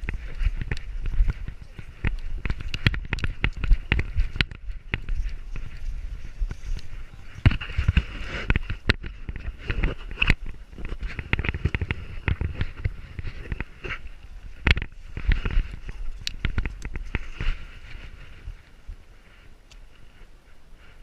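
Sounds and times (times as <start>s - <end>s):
camera knocks and scuffs: 6.4s - 14.0s.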